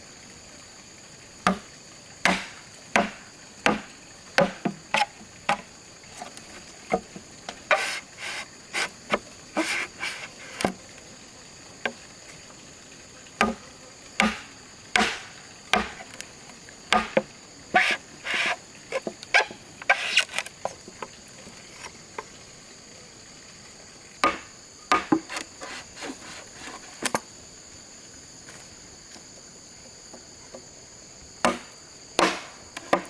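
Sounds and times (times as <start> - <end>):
insects droning: 0.0 - 33.0
blade chopping bamboo: 1.4 - 10.8, 13.4 - 13.6, 14.2 - 16.3, 16.9 - 20.5, 24.2 - 27.2, 31.4 - 33.0.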